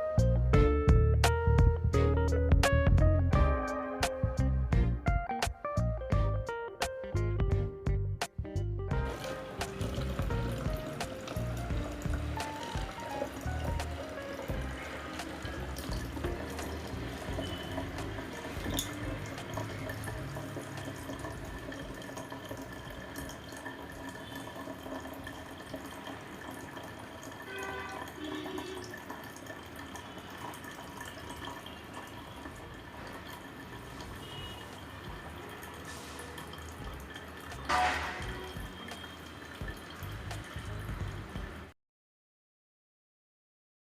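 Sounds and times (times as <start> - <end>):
fountain water trickling and dripping: 9.0 - 41.7.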